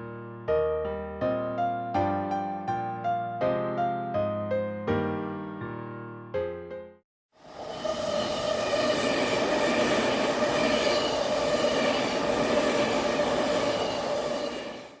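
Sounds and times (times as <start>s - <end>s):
high-speed train running: 7.4s - 15.0s.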